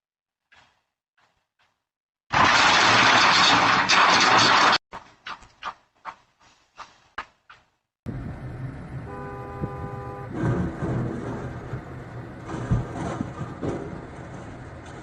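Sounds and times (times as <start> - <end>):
road and engine noise: 6.4 - 15.0
vehicle horn two-note blast: 9.0 - 10.4
scattered knocks: 10.3 - 15.0.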